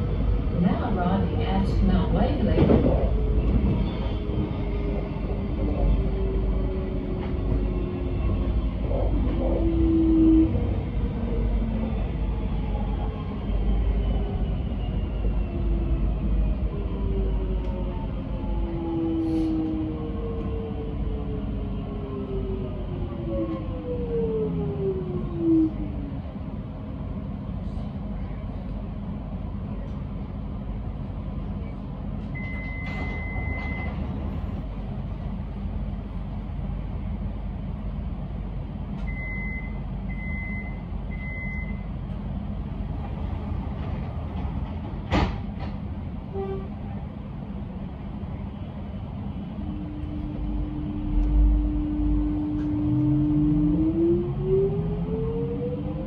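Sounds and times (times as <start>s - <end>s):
train beeps: 32.3s - 34.2s, 39.0s - 41.9s
electric train humming: 41.8s - 56.0s.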